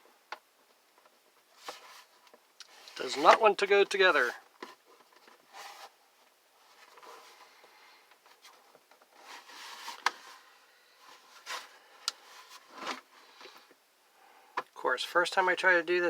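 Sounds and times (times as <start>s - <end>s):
parts scraping and rubbing: 8.4s - 13.6s.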